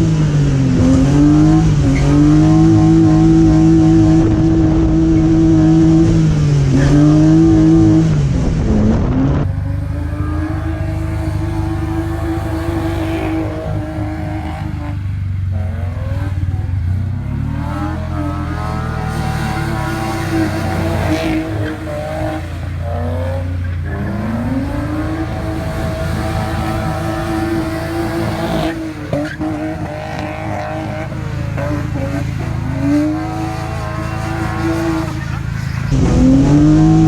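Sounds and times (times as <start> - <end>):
car engine revving hard: 0.0 - 37.0.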